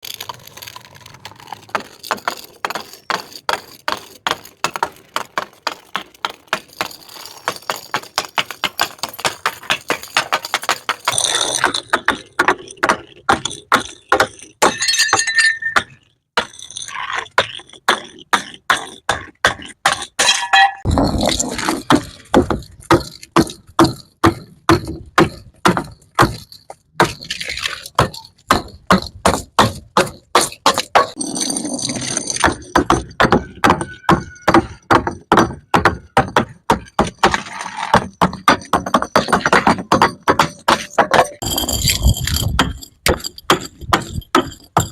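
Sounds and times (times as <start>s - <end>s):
bottles crashing and clinking: 14.6s - 16.0s.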